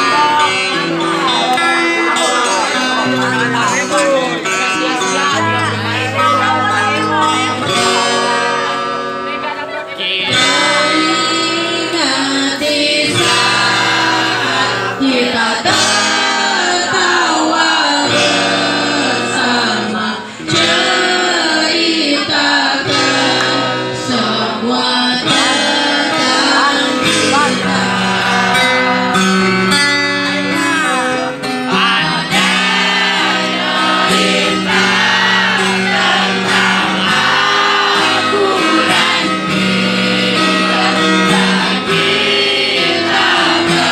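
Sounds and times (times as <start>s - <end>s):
guitar accompaniment: 0.0s - 43.9s
person singing: 10.2s - 43.9s.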